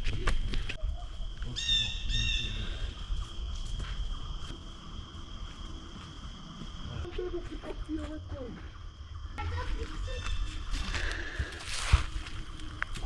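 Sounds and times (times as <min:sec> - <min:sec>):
crickets droning: 0:00.0 - 0:13.0.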